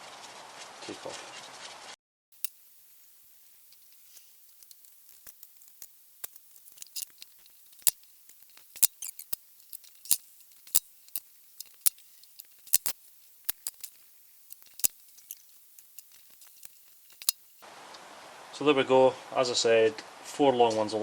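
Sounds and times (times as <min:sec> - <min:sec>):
metallic clicks of studs and tools: 0:02.4 - 0:17.6.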